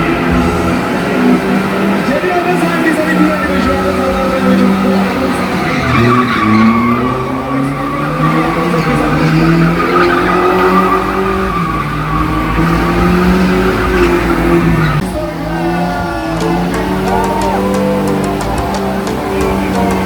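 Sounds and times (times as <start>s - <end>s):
car engine at high revs: 0.0s - 20.0s
tyres squealing and skidding: 0.0s - 20.0s
music with guitar: 15.0s - 20.0s.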